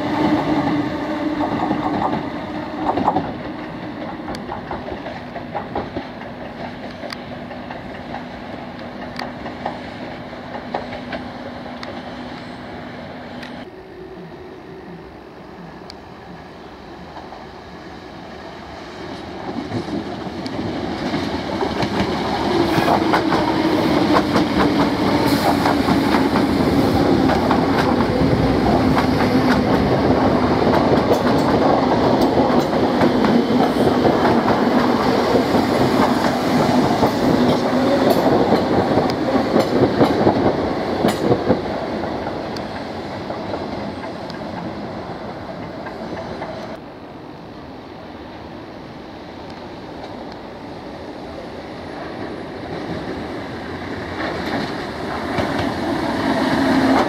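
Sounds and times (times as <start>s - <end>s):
train wheels clattering over joints: 19.5s - 44.7s.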